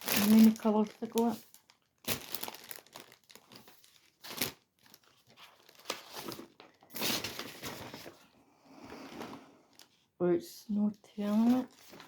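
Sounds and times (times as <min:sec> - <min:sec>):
plastic packaging crinkling: 0:00.0 - 0:08.4, 0:11.1 - 0:12.0.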